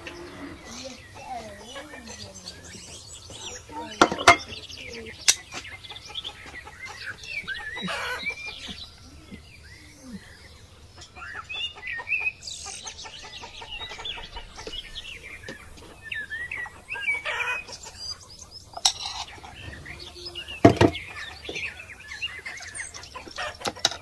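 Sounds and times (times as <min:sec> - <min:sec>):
chickens clucking: 0:00.0 - 0:24.0
metal spoon clinking on pot: 0:04.0 - 0:04.5, 0:18.8 - 0:19.3.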